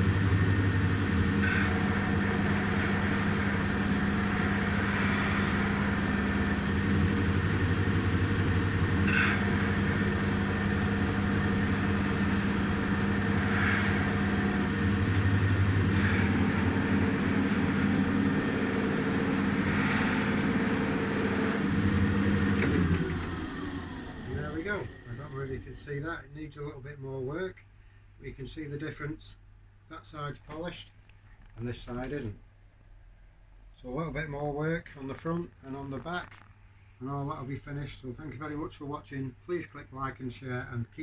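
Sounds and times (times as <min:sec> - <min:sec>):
polishing machine motor hum: 0:00.0 - 0:26.0.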